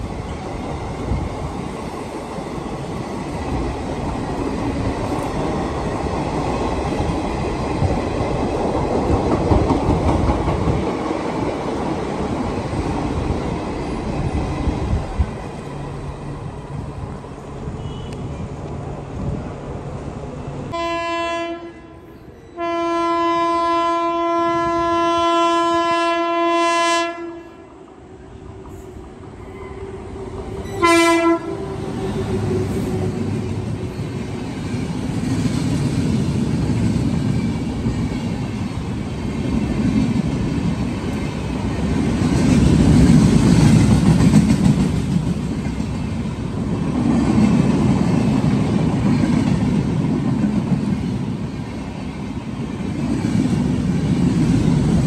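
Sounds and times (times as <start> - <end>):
train running past on tracks: 0.0 - 55.0
train horn blasts: 17.8 - 18.4, 20.7 - 27.7, 29.5 - 33.2.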